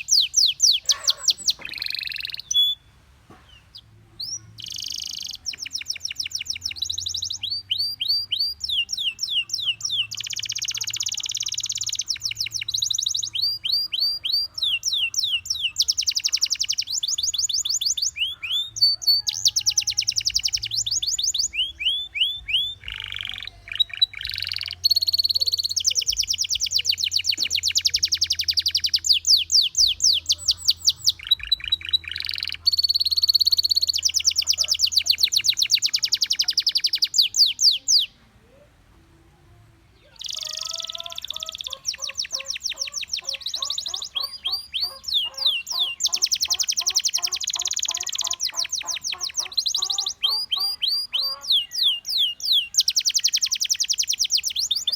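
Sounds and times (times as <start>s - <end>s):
canary singing trills: 0.0s - 38.7s, 39.8s - 54.9s.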